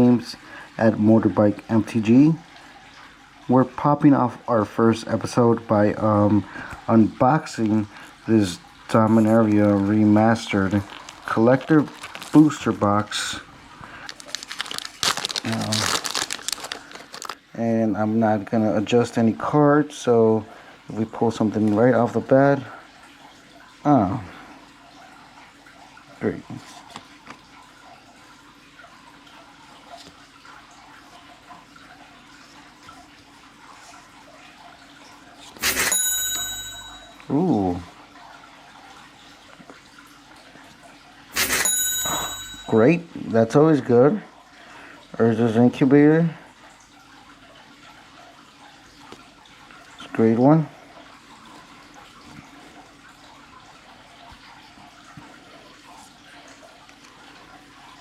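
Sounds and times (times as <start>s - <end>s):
cards rustling and clicking: 9.1s - 12.8s, 13.9s - 17.4s
bell-like ding: 35.8s - 37.2s, 41.5s - 42.8s.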